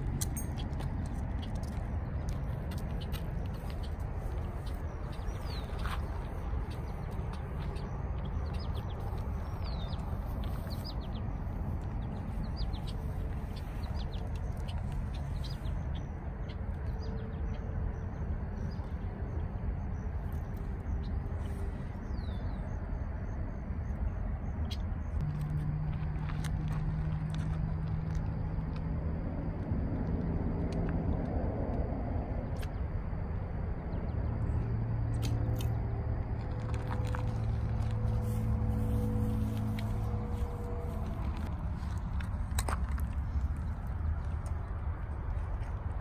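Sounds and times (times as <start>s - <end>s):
birds chirping: 0.0s - 23.4s
steady low rumble: 0.0s - 46.0s.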